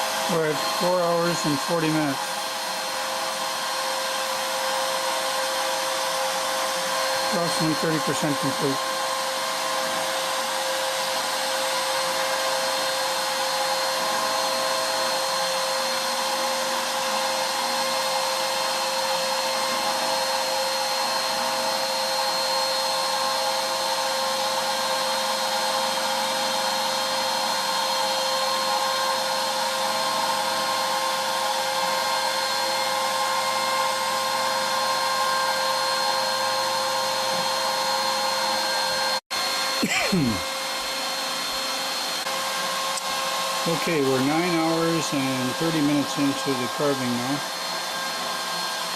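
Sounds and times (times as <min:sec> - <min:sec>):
router bit cutting wood: 0:00.0 - 0:48.9
router spindle whining: 0:00.0 - 0:48.9.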